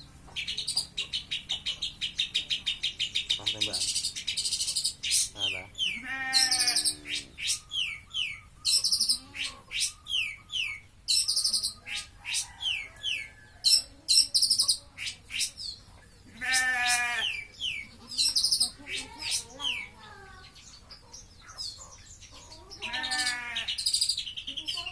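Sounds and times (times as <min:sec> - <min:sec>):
bird chirping and trilling: 0:00.3 - 0:24.9
goat bleating: 0:05.8 - 0:07.3, 0:09.0 - 0:09.7, 0:16.3 - 0:17.5, 0:22.7 - 0:23.8.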